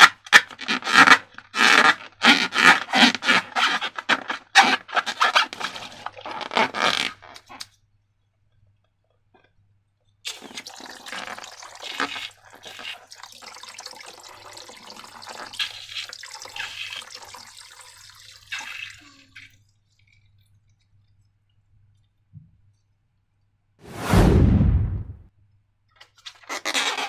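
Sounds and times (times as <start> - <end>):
short loud burst of noise: 23.8 - 25.3.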